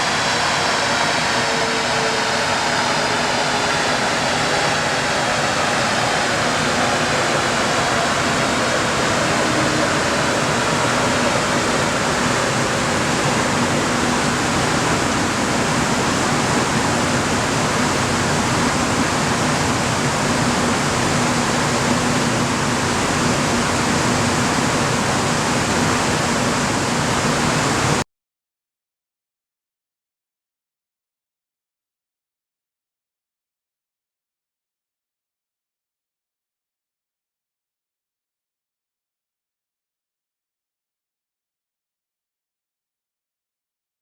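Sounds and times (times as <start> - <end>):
loud rushing noise: 0.0 - 28.0.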